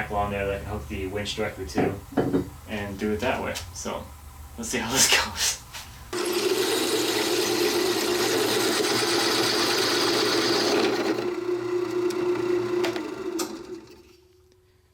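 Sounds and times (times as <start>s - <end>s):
electric drill motor: 6.1s - 14.3s
hole saw grinding metal: 6.2s - 13.9s.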